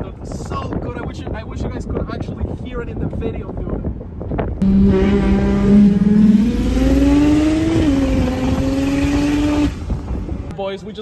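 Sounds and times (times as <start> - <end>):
car engine accelerating: 4.6 - 10.5.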